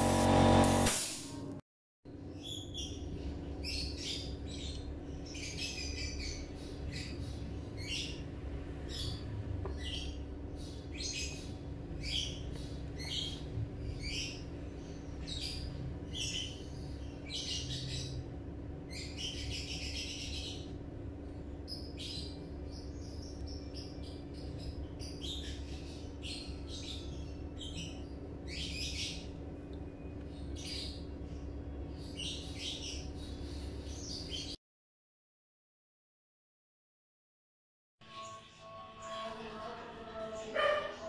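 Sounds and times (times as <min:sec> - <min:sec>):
steady low hum: 0:00.0 - 0:34.6
birds chirping: 0:02.3 - 0:34.6.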